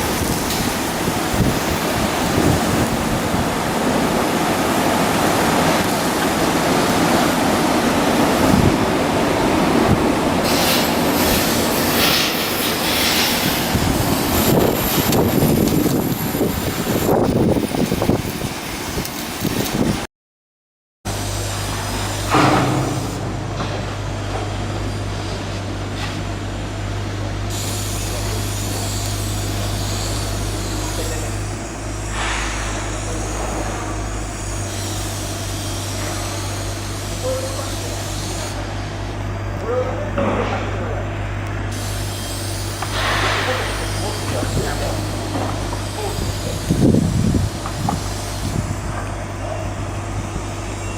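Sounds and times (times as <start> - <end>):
machinery rumble: 0.0 - 20.1, 21.1 - 50.9
dense hiss: 10.4 - 18.1, 41.7 - 48.6
short hiss: 10.5 - 13.7, 41.8 - 44.1.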